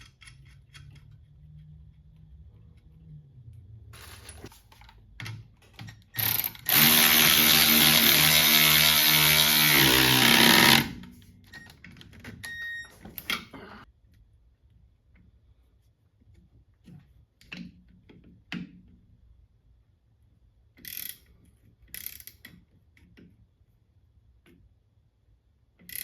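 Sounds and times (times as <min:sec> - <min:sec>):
tools and parts clicking: 0:00.0 - 0:02.3, 0:20.8 - 0:23.3, 0:25.8 - 0:26.0
power tool running: 0:06.2 - 0:11.0.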